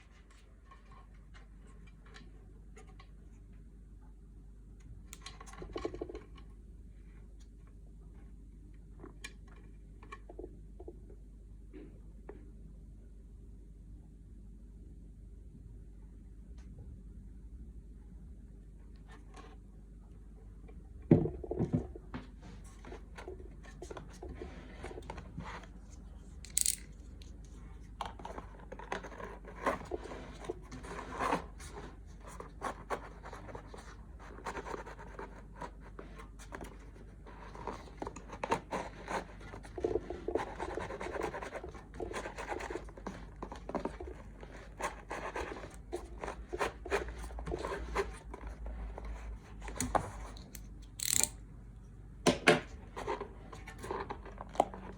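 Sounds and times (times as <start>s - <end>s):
hand tools scraping and clicking: 26.4s - 26.9s, 50.4s - 51.4s.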